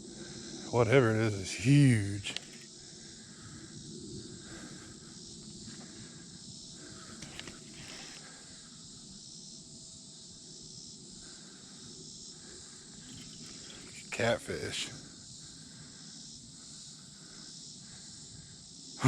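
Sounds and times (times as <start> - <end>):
crickets and insects chirping: 0.0 - 19.0
faint ticks: 2.3 - 2.7.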